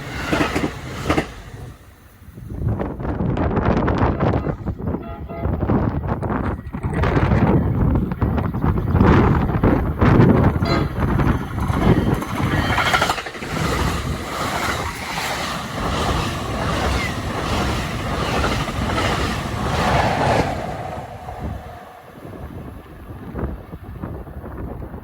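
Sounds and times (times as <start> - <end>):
regular clicks of train wheels: 0.0 - 4.0, 5.8 - 25.0
train wheels rushing on rail: 0.0 - 25.0.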